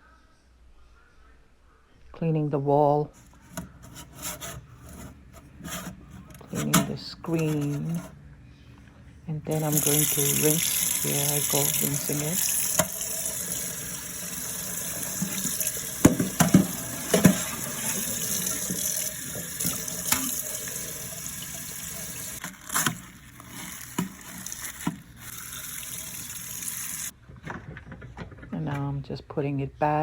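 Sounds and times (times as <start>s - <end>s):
tap water running: 9.5s - 27.1s
filter knocking against sink: 15.2s - 18.9s.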